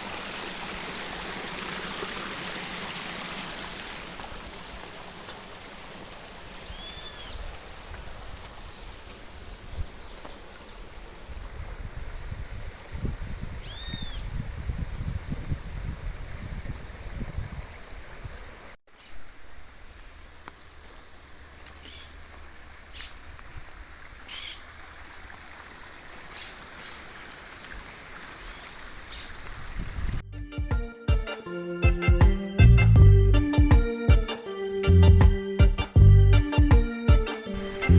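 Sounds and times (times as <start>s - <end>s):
creek water rushing: 0.0s - 9.5s
stream water running: 0.0s - 13.2s, 16.9s - 29.9s
music: 30.3s - 37.9s
low rumbling: 32.6s - 33.6s, 34.8s - 36.6s.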